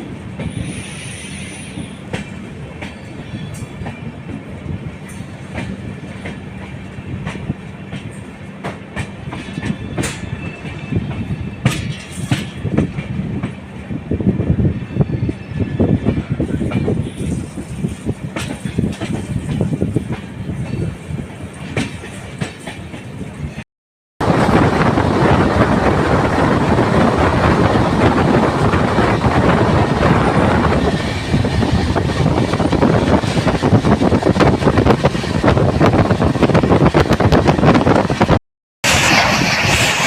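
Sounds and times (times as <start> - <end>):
train wheels rumbling on track: 0.0 - 23.6, 24.2 - 40.0
clicks of train wheels: 0.4 - 13.6, 16.1 - 23.2.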